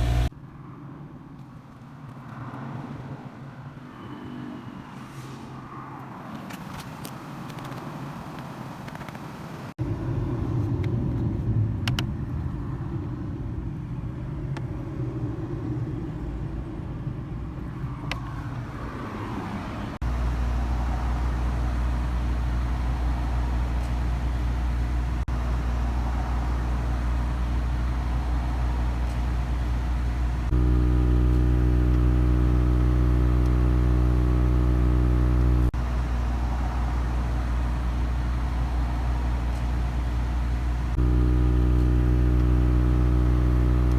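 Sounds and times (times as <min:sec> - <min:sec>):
air conditioning compressor droning: 0:00.0 - 0:00.3, 0:20.0 - 0:32.7, 0:35.6 - 0:43.9
car engine idling: 0:00.0 - 0:00.3, 0:20.0 - 0:43.9.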